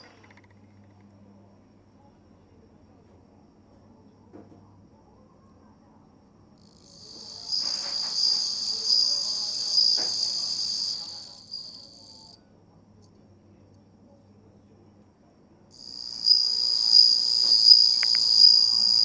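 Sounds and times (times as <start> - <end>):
cricket trilling: 0.0 - 4.3, 6.6 - 12.5, 15.7 - 19.0.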